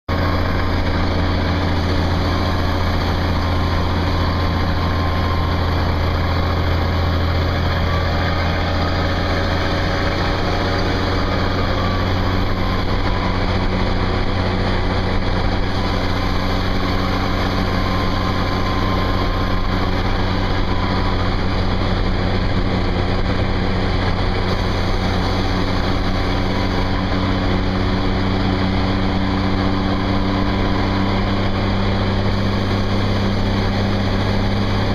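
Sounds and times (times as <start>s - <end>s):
truck engine droning: 0.1s - 34.9s
turbo whistle: 15.7s - 21.5s.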